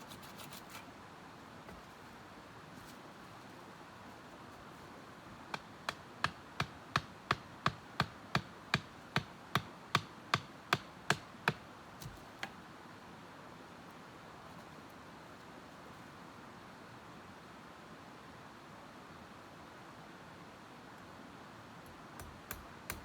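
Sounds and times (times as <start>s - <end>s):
tool striking sharp knocks: 5.5s - 12.5s, 22.2s - 23.0s.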